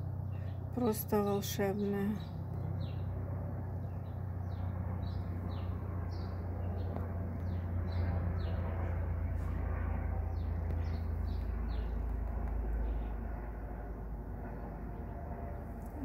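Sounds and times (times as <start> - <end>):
steady low rumble: 0.0 - 16.0
small birds chirping: 0.1 - 9.6, 10.3 - 13.2.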